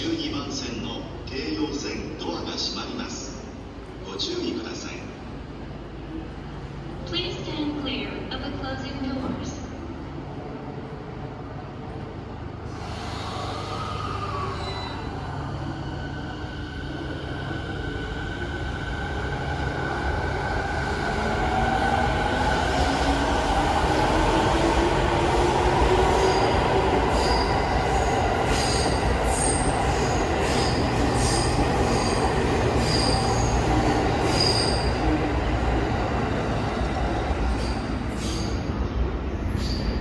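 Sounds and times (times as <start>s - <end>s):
high-pitched wheel squeals: 13.2s - 15.4s, 34.2s - 35.0s.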